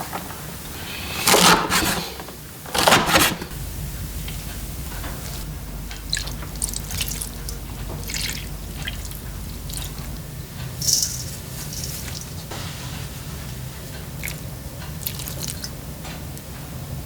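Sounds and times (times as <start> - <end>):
liquid dripping and splashing: 5.9 - 12.5, 14.0 - 15.8.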